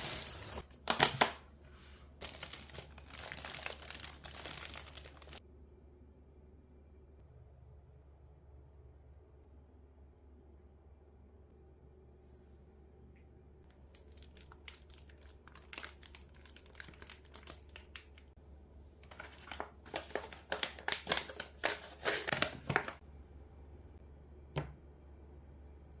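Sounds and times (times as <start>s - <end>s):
packaging crinkling: 0.0s - 1.4s, 2.2s - 5.4s, 13.8s - 18.3s, 19.0s - 23.0s.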